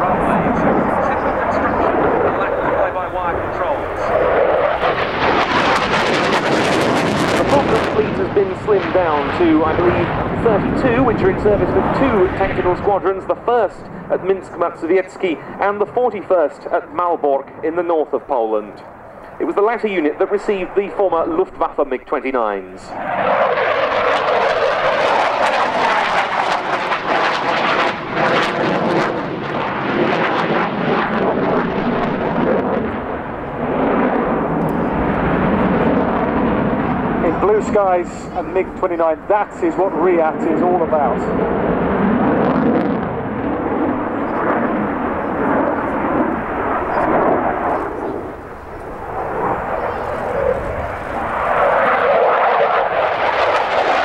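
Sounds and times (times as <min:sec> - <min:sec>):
jet fighter roaring past: 0:00.0 - 0:54.0.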